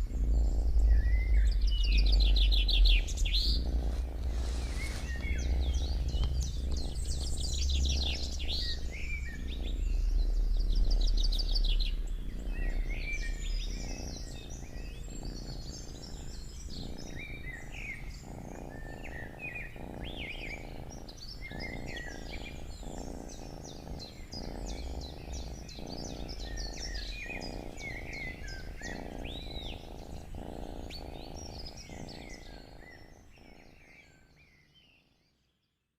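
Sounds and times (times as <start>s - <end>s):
low rumble: 0.0s - 19.1s
cat purring: 0.0s - 35.9s
songbirds chirping: 0.0s - 35.9s.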